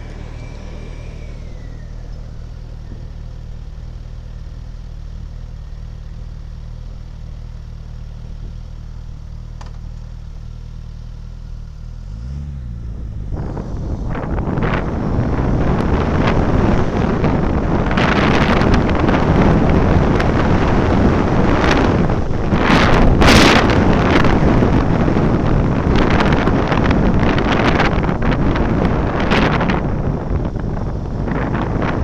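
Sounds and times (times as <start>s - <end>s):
wind rushing over microphone: 0.0s - 4.4s, 12.1s - 32.0s
engine and road rumble: 0.0s - 32.0s.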